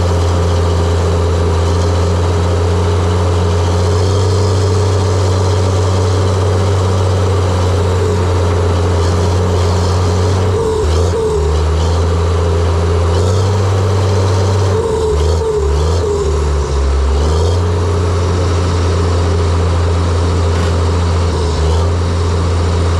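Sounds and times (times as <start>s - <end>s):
bulldozer diesel engine running: 0.0s - 22.9s
whine above engine: 0.0s - 22.9s.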